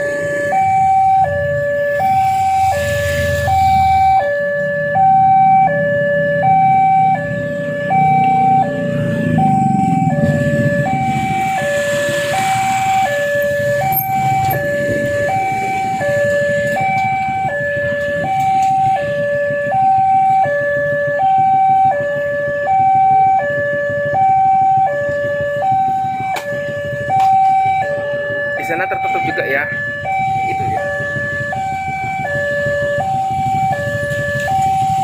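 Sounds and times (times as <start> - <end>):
road traffic rumble: 0.0 - 35.0
two-tone level crossing alarm: 0.0 - 35.0
vehicle passing: 1.9 - 4.2, 6.7 - 16.3.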